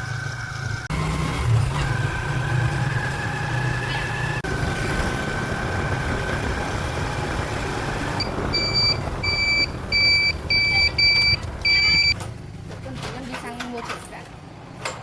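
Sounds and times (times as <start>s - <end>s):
vehicle engine running: 0.0s - 13.4s
reversing alarm beeping: 8.2s - 12.2s.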